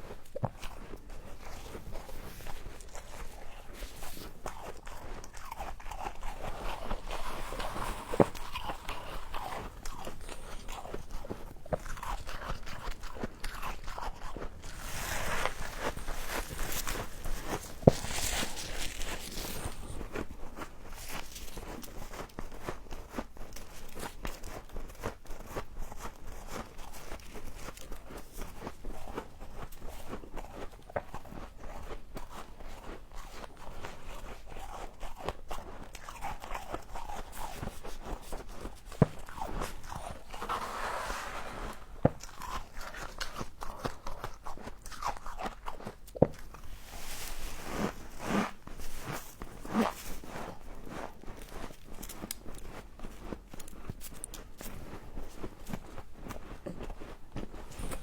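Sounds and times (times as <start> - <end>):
chewing frost crunches: 0.0 - 58.0.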